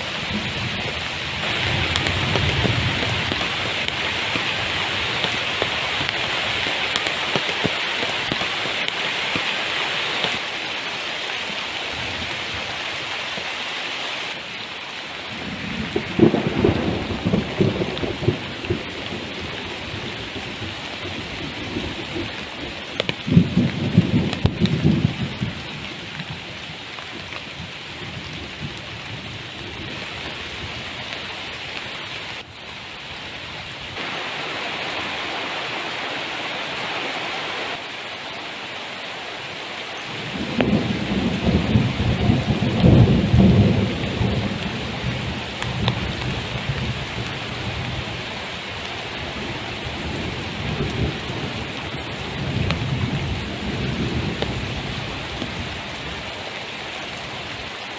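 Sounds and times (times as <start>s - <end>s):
thunder rumbling: 0.0s - 8.9s, 15.3s - 26.5s, 40.1s - 56.2s
heavy rain: 0.0s - 57.9s.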